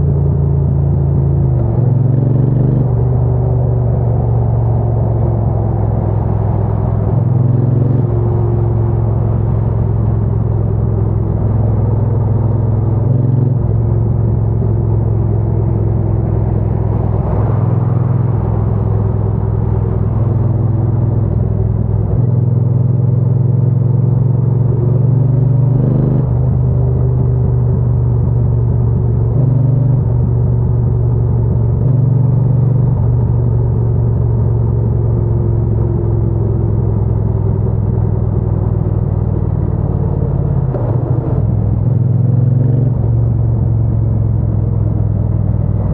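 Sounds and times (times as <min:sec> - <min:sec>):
motorcycle engine and exhaust: 0:00.0 - 0:45.9.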